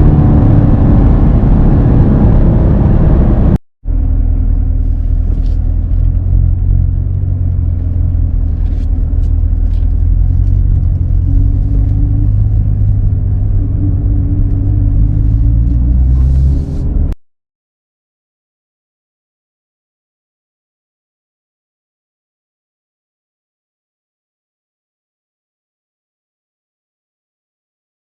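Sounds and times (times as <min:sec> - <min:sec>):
car engine rumbling: 0:00.0 - 0:17.2.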